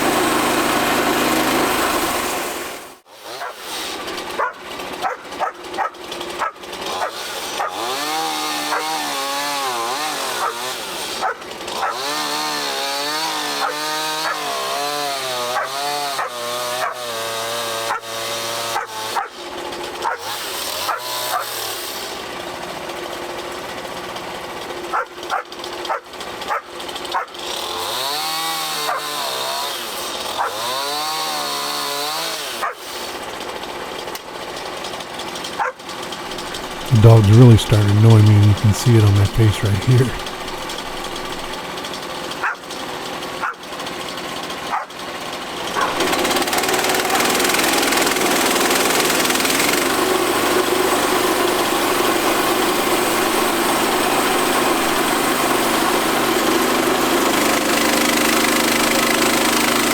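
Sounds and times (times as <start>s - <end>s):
bandsaw mill cutting log: 0.0s - 2.8s, 12.0s - 18.7s, 56.4s - 59.9s
dogs barking: 4.4s - 7.8s, 11.2s - 12.1s.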